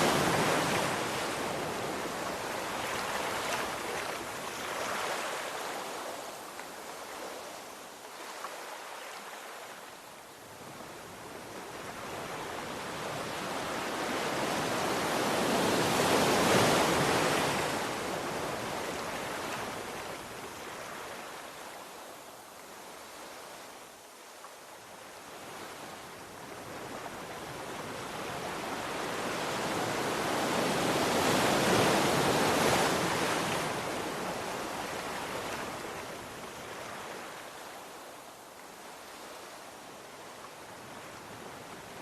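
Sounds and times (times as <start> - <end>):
ocean surf washing ashore: 0.0 - 7.7, 11.0 - 21.8, 25.4 - 39.8.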